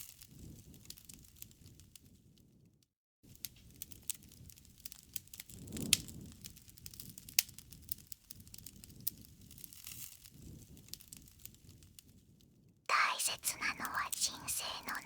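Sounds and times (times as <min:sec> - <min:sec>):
wood fire crackling and popping: 0:03.8 - 0:07.7.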